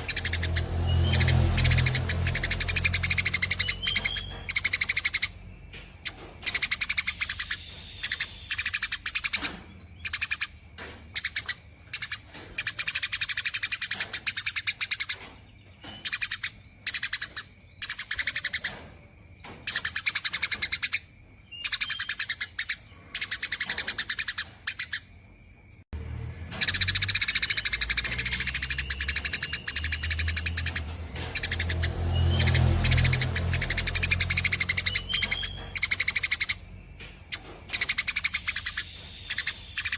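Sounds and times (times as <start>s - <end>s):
sparrow chattering: 0.0s - 25.2s, 26.5s - 39.9s.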